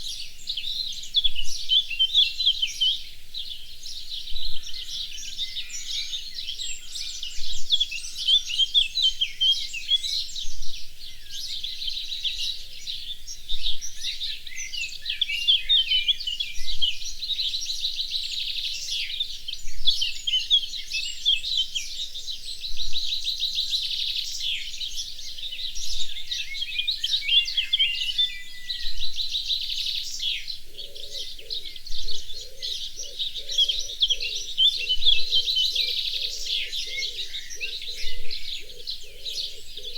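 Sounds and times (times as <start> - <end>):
songbirds chirping and trilling: 0.0 - 39.9
lower bird call: 24.4 - 39.9.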